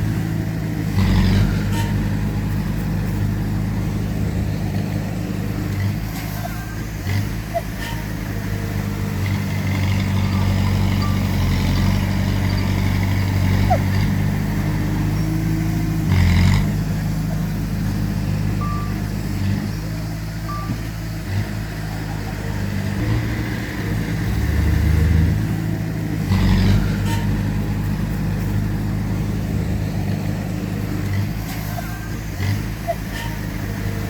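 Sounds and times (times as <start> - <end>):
heavy diesel machinery engines: 0.0 - 34.0
brief beeps: 18.6 - 19.0, 20.5 - 20.8.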